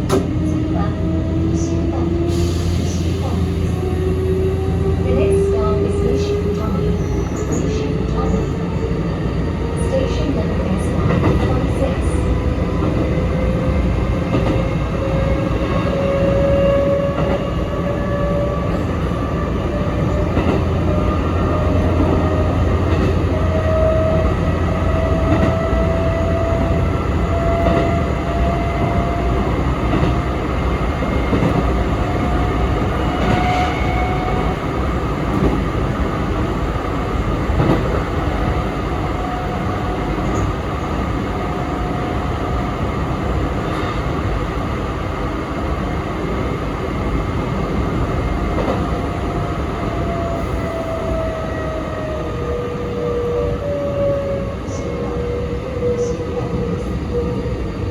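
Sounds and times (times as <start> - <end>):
rail joint clicks: 0.0 - 0.6, 9.7 - 36.7, 37.3 - 38.7, 48.2 - 49.4
train wheels rumbling on rails: 0.0 - 57.9.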